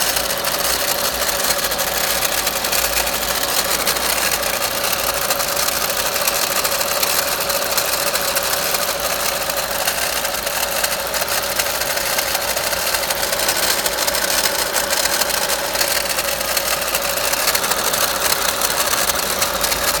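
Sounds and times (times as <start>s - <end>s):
car engine rattling: 0.0s - 20.0s.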